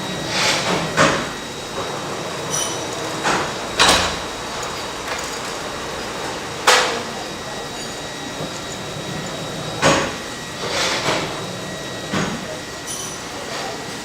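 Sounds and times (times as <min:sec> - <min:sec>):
steady machine noise: 0:00.0 - 0:14.0
iron bars clanking: 0:02.3 - 0:10.2.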